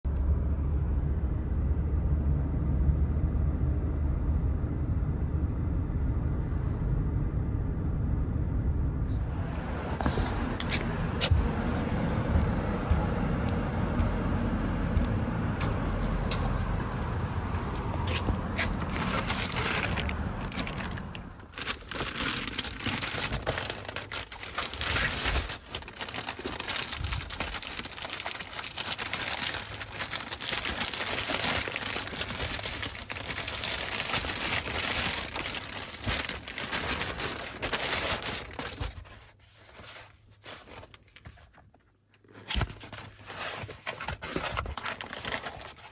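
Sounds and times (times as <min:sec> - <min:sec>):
car engine and road rumble: 0:00.0 - 0:41.5
plastic packaging crinkling: 0:15.6 - 0:45.9.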